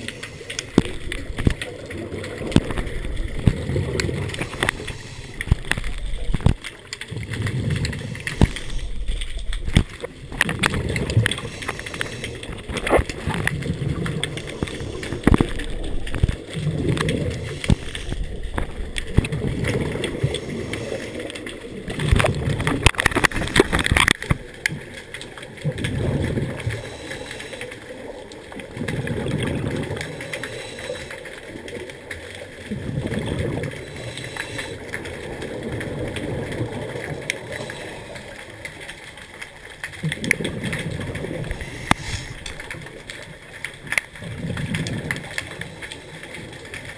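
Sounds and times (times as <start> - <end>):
bubbles gurgling: 0.0 - 46.9
diver breathing through regulator: 2.6 - 6.5, 7.7 - 9.4, 11.1 - 13.0, 17.2 - 18.7, 20.0 - 21.6, 26.6 - 28.0, 29.8 - 31.4, 33.6 - 35.1, 37.4 - 38.6, 41.4 - 42.8.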